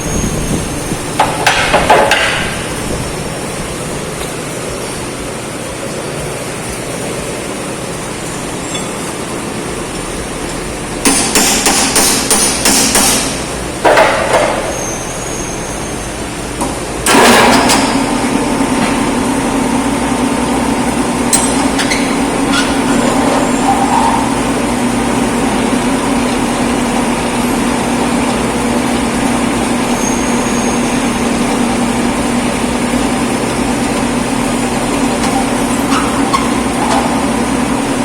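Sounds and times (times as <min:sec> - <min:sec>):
hammer striking metal: 0:11.0 - 0:14.6.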